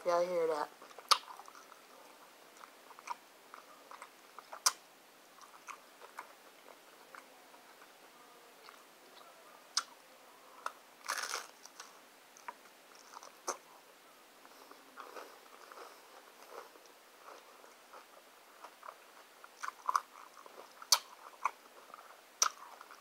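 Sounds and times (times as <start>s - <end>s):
crunchy taco shell chewing: 10.6s - 13.6s, 15.0s - 23.0s.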